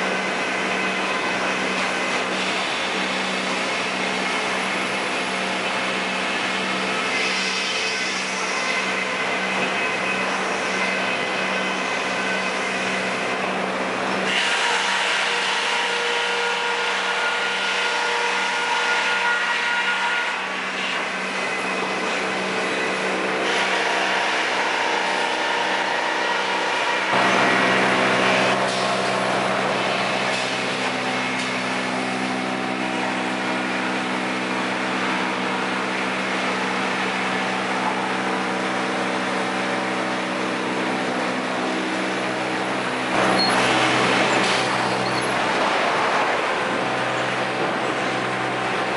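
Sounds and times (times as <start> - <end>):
sawing: 0.0 - 48.9
machinery motor hum: 27.1 - 48.9.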